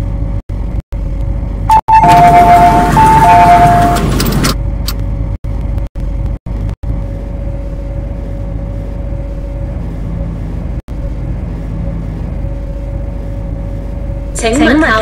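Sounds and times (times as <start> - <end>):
train low hum: 0.0 - 15.0
two-tone electronic beeping: 1.7 - 4.0
faint steady whine: 5.5 - 15.0.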